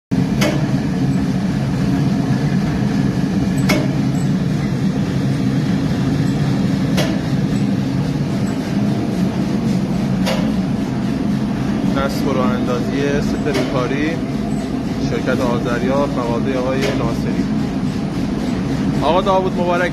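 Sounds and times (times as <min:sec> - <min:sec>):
machine mechanical drone: 0:00.1 - 0:19.9
sharp machine click: 0:03.6 - 0:04.4.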